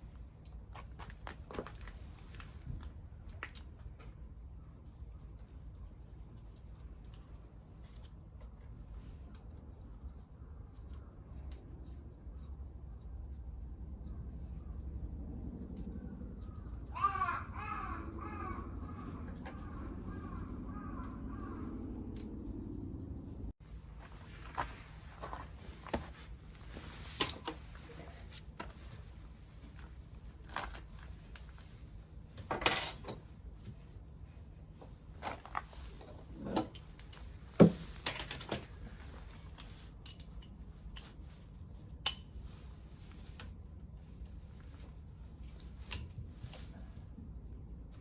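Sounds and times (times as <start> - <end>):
metal tools clinking and knocking: 32.4 - 33.2.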